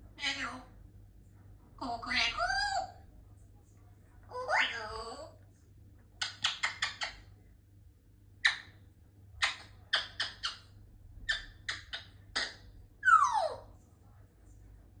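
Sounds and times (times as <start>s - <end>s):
parrot squeaky chirps and clicks: 6.2s - 7.3s, 8.4s - 8.8s, 9.4s - 13.6s.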